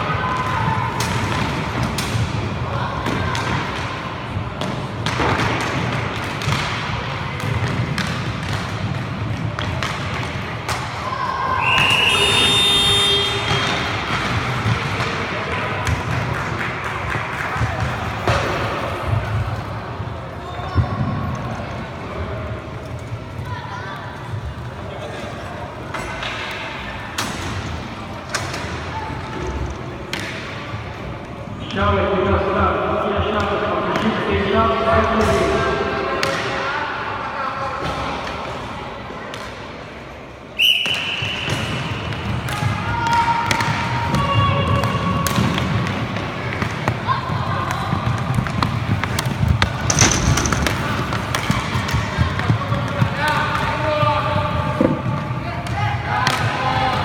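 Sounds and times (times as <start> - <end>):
hockey sticks and puck clacking: 0.1 - 19.5, 25.8 - 30.7, 39.3 - 39.7, 40.6 - 57.0
sticks striking puck: 47.7 - 53.7.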